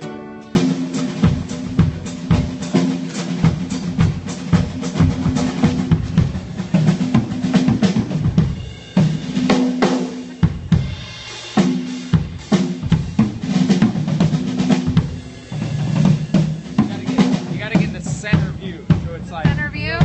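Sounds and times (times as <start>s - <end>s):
ringing low drum notes: 0.6s - 20.0s
snare and bass drum hits: 0.6s - 20.0s.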